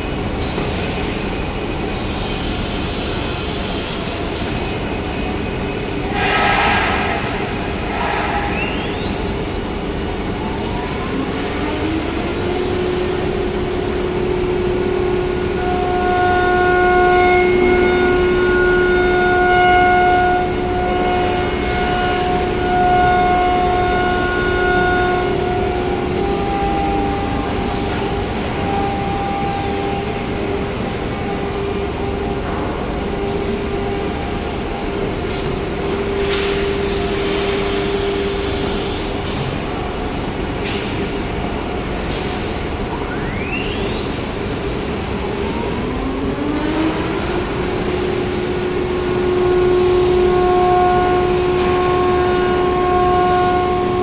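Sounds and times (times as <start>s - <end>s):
router spindle whine: 8.6s - 32.4s, 42.8s - 54.0s.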